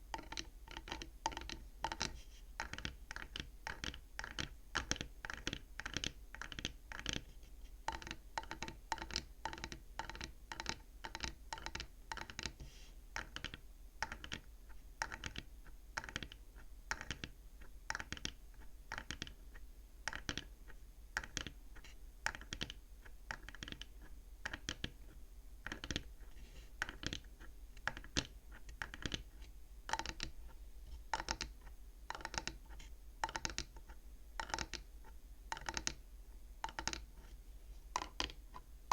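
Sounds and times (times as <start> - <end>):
fingers tapping on wooden frame: 29.9 - 30.3, 31.1 - 32.6, 33.2 - 33.8, 34.4 - 34.9, 35.5 - 36.0, 36.6 - 37.1, 38.0 - 38.4.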